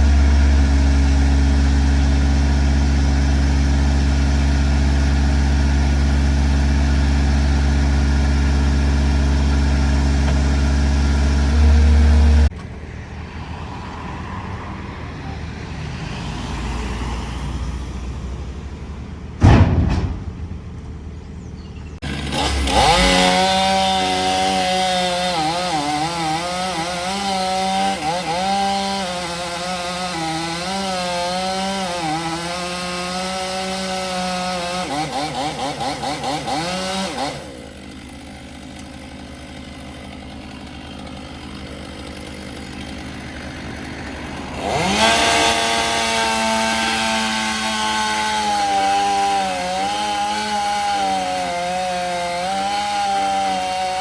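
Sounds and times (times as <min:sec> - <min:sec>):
chainsaw cutting wood: 0:00.0 - 0:12.6, 0:22.0 - 0:54.0
diesel engine humming: 0:00.0 - 0:54.0
brief loud burst: 0:19.4 - 0:20.8.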